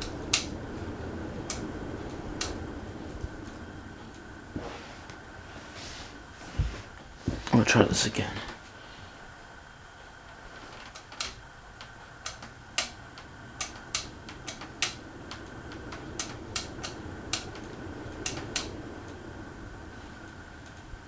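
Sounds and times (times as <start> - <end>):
sharp clicks: 0.0 - 0.6, 1.4 - 2.6, 10.8 - 19.2
ceiling fan humming: 0.0 - 21.0.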